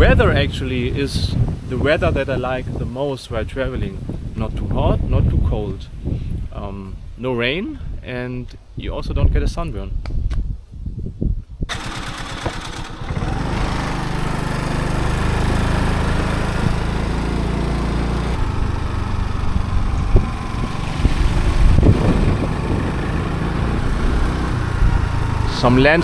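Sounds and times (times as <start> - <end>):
wind and road noise: 0.0 - 26.0
motorbike engine running: 11.7 - 26.0.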